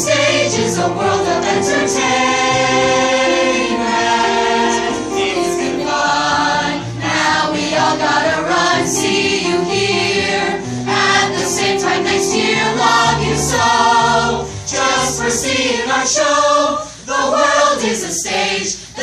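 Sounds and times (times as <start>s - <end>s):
instrumental accompaniment: 0.0s - 16.0s
group singing show tune: 0.0s - 19.0s.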